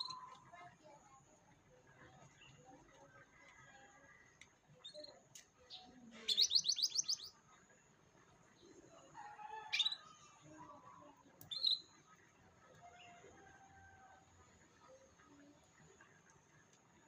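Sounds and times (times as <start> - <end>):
canary chirp: 0.0 - 0.4, 4.8 - 7.4, 9.3 - 10.4, 11.4 - 12.3
canary trilling: 6.2 - 7.3.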